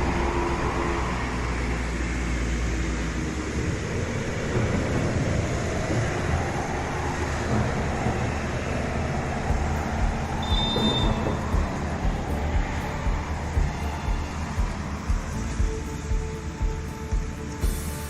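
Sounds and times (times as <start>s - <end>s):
passing traffic rumble: 0.0s - 18.0s
high-pitched tone: 9.5s - 18.0s.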